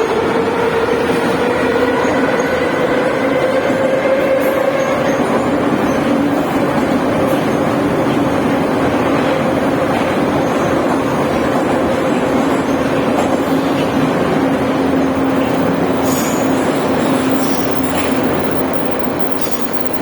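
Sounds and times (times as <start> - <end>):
metro train rumbling: 0.0 - 20.0.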